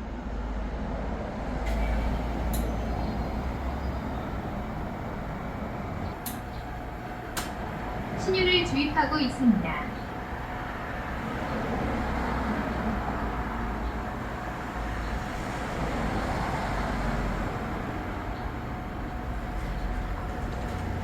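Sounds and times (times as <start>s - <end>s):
machine hum: 1.5s - 21.0s
faint steady whine: 1.7s - 16.2s.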